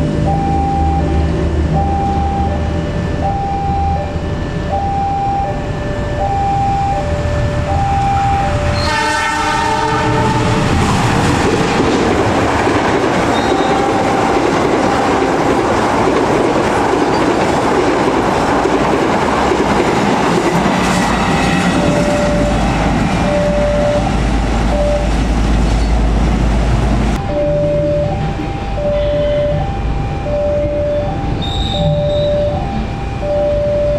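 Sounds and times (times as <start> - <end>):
locomotive horn: 0.0 - 11.1, 13.1 - 15.6, 27.2 - 33.9
two-tone crossing alarm: 0.0 - 26.0, 27.2 - 33.9
train wheels clattering on rails: 10.3 - 27.0.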